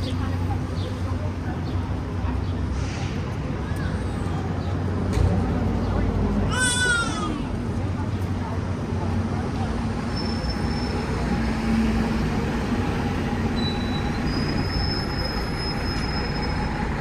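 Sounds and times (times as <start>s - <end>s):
low rumble of train: 0.0s - 17.0s
rail wheels squealing on track: 10.0s - 11.3s, 13.4s - 17.0s.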